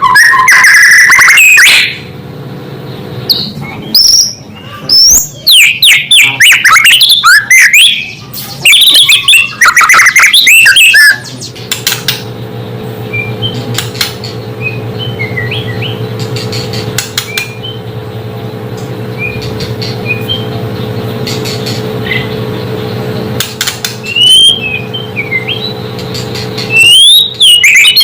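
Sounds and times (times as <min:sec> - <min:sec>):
steady low hum: 0:00.0 - 0:28.0
bird singing whistled phrases: 0:03.3 - 0:11.5, 0:13.1 - 0:13.6, 0:14.6 - 0:16.0, 0:19.2 - 0:20.6, 0:24.0 - 0:25.8, 0:26.7 - 0:28.0
sharp clicks: 0:11.7 - 0:12.3, 0:13.6 - 0:14.4, 0:16.2 - 0:17.6, 0:23.4 - 0:24.2.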